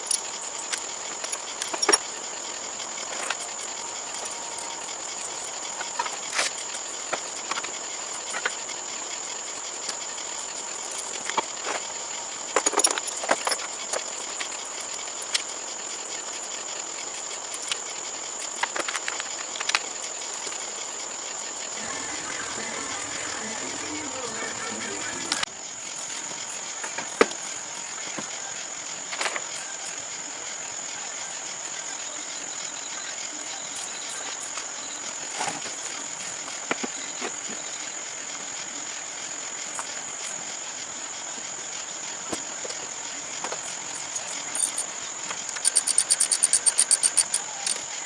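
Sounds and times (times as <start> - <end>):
high-pitched insect drone: 0.0 - 48.0
metallic clicks and knocks of tools: 43.4 - 47.9.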